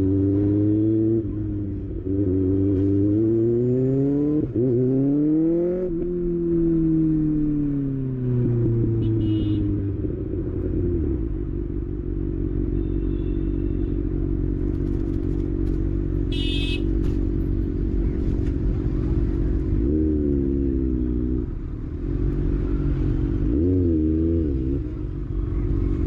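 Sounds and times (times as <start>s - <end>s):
motorcycle engine running: 8.7s - 20.8s.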